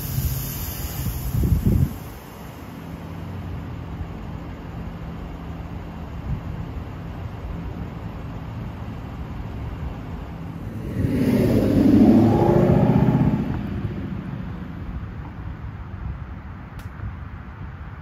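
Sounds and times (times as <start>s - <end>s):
car engine revving: 10.5s - 15.1s.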